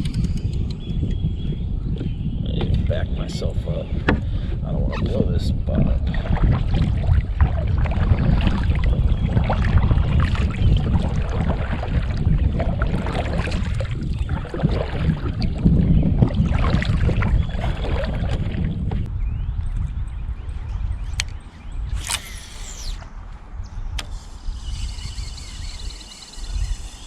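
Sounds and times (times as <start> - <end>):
wind rumble on microphone: 0.0 - 27.0
kayak splashing in water: 6.0 - 19.0.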